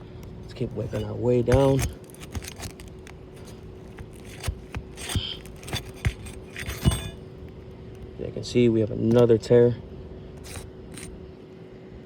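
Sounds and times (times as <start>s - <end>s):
tool scraping roof shingles: 0.6s - 7.2s.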